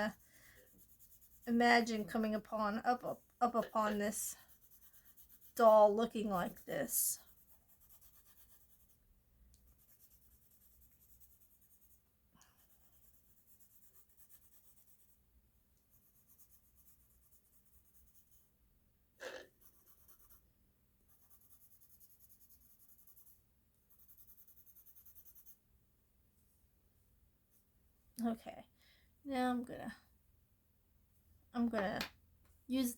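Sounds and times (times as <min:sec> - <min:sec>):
pencil scratching on paper: 0:00.0 - 0:09.0, 0:09.7 - 0:15.2, 0:15.9 - 0:18.5, 0:19.3 - 0:20.5, 0:21.1 - 0:25.6
soft breath: 0:00.2 - 0:00.8.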